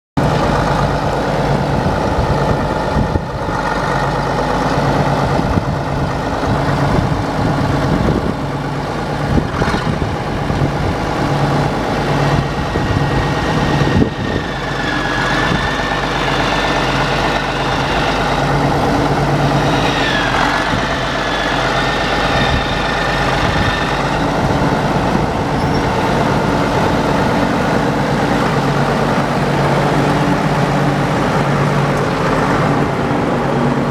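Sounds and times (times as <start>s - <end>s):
tractor diesel engine running: 0.2s - 33.9s.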